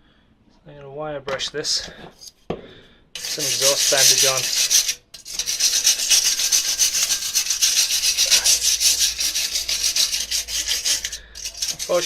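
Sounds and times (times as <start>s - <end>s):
wire brush scrubbing metal: 3.2s - 12.0s.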